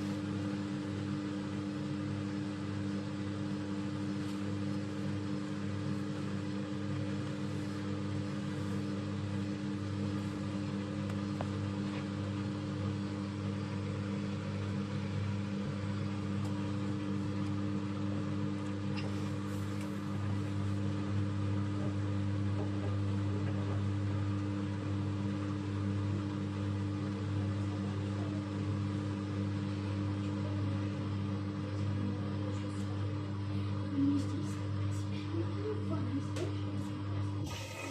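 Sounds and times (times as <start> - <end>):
washing machine humming: 0.0 - 37.9.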